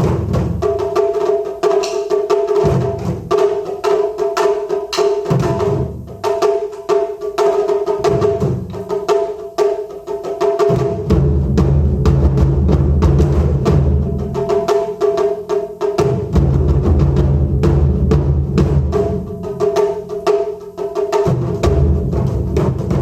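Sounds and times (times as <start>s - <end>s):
deep drum booms: 0.0s - 3.6s, 10.6s - 15.3s, 15.9s - 20.4s, 21.1s - 23.0s
sharp drum stick strikes: 1.7s - 2.3s, 4.9s - 5.4s.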